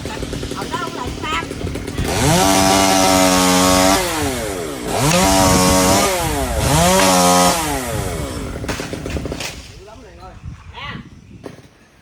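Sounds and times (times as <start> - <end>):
chainsaw revving: 0.0 - 9.6.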